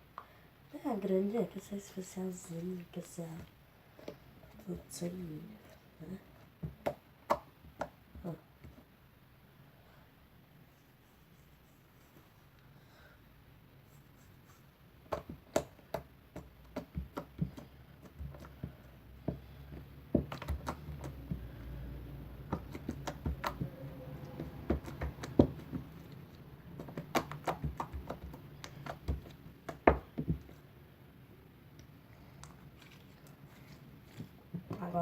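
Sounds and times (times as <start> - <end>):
slime clicking and popping: 26.8 - 30.0.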